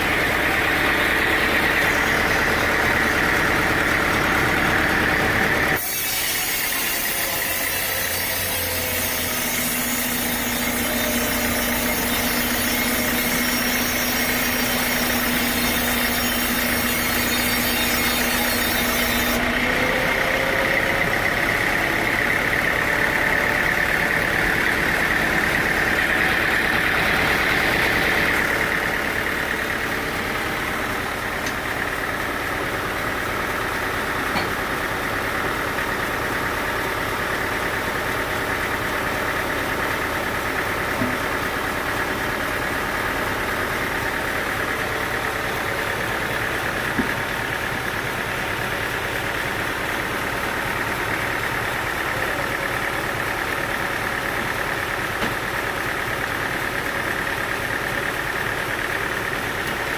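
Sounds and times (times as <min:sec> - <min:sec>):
sawmill machinery droning: 0:00.0 - 0:59.9.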